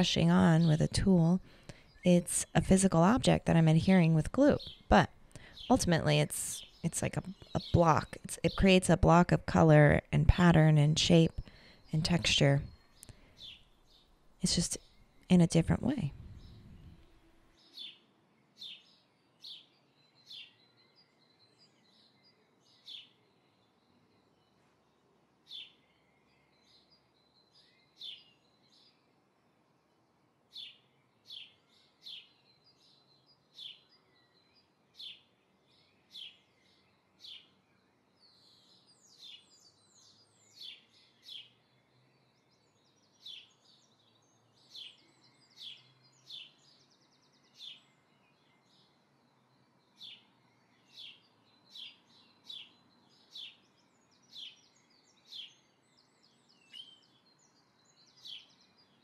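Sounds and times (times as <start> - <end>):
small bird chirping: 38.2 - 59.0.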